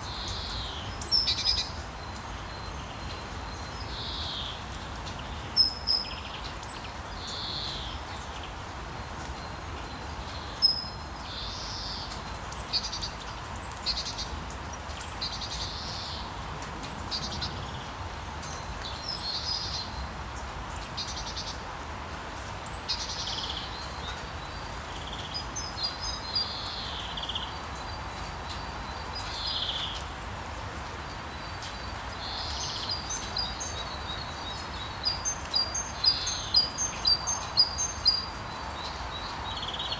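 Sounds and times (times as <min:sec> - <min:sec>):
bird calls and chirps: 0:31.3 - 0:39.9.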